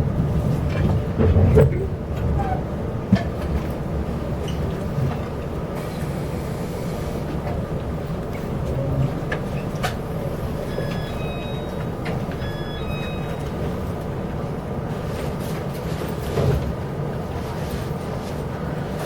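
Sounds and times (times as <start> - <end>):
train carriage rumbling: 0.0 - 19.0
brief high tones: 10.6 - 13.7.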